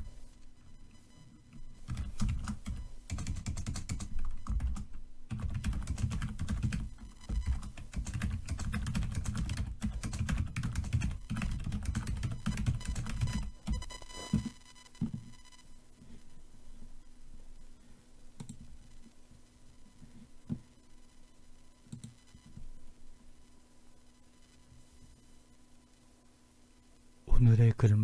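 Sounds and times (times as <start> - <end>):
computer keyboard typing: 1.8 - 15.4, 18.4 - 18.6, 21.9 - 22.2.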